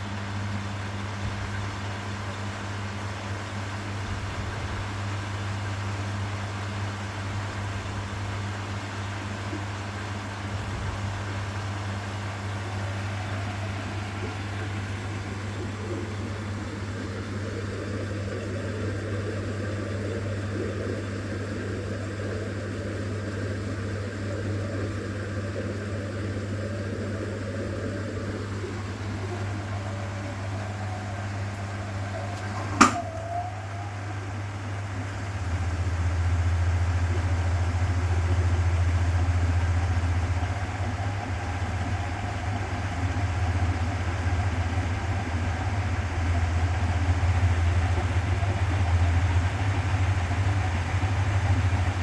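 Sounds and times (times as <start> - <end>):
washing machine motor hum: 0.0 - 52.0
drum churning: 28.4 - 52.0.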